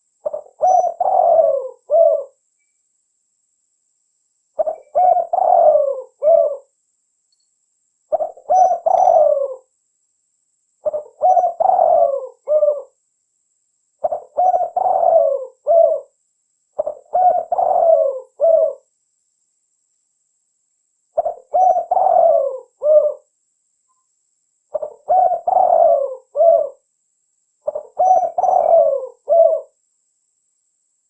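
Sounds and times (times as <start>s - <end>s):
dove cooing: 0.0s - 2.4s, 4.6s - 6.7s, 8.1s - 9.7s, 10.8s - 13.0s, 14.0s - 16.2s, 16.8s - 18.8s, 21.2s - 23.3s, 24.7s - 26.8s, 27.6s - 29.8s.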